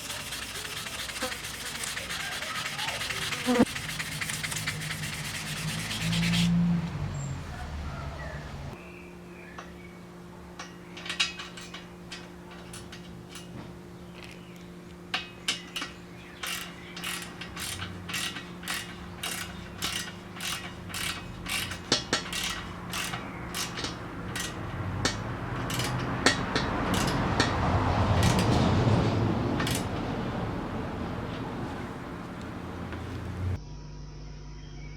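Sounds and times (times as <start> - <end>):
ratchet clicking: 0.0 - 6.5, 15.8 - 27.6, 28.2 - 28.6, 29.6 - 30.0.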